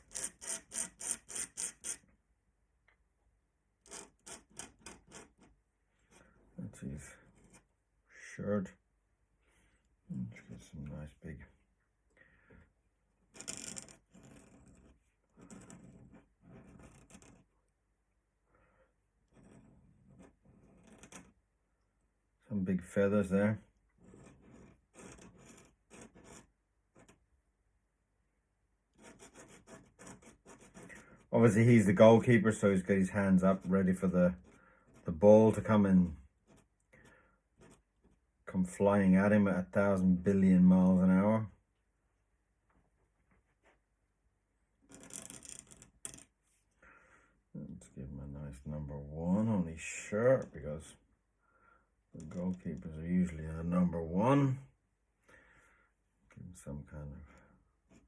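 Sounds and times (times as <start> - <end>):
pen nib scratching on paper: 0.0 - 2.0, 3.8 - 5.5, 13.3 - 17.5, 19.2 - 21.3, 24.0 - 27.2, 29.0 - 31.2.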